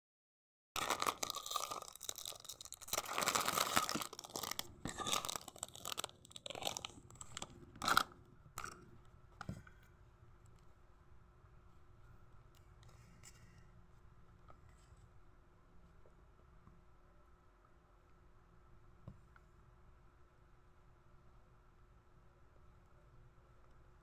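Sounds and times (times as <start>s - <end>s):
person chewing crunchy food: 0.8s - 8.8s.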